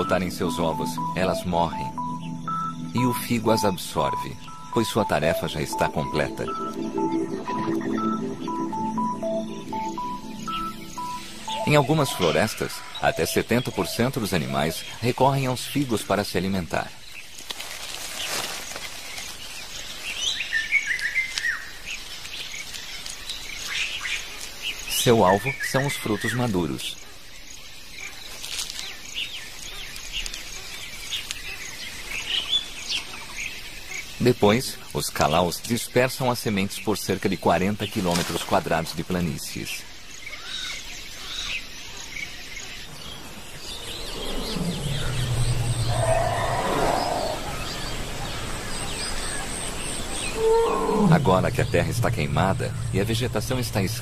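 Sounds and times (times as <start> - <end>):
birds chirping and calling: 0.0 - 17.4, 39.2 - 54.0
faint forest ambience hiss: 0.0 - 54.0
insect chorus: 0.0 - 54.0
deep drawn-out sound: 42.9 - 49.2, 49.9 - 54.0.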